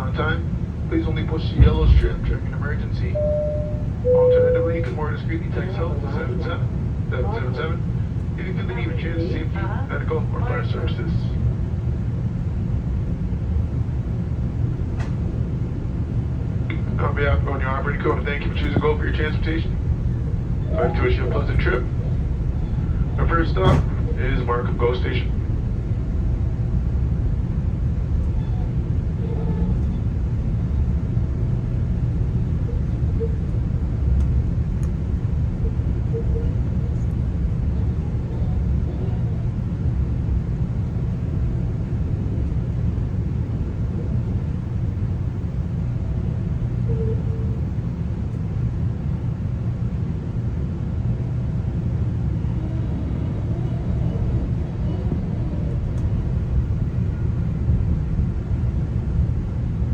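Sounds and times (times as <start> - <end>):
train coach rumble: 0.0 - 59.9
faint brief tones: 3.2 - 5.0.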